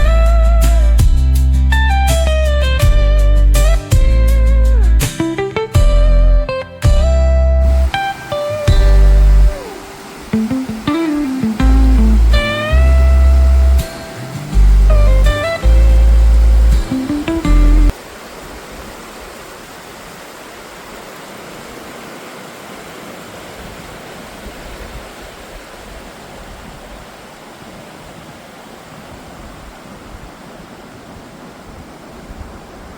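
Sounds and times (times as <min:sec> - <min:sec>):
background music: 0:00.0 - 0:17.9
river rapids roaring: 0:07.6 - 0:32.9.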